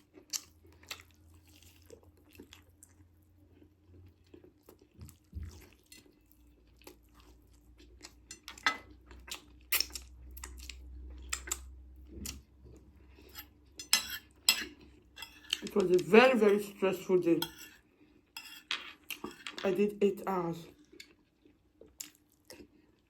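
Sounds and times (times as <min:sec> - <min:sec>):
chewing and biting food: 0:00.0 - 0:13.3.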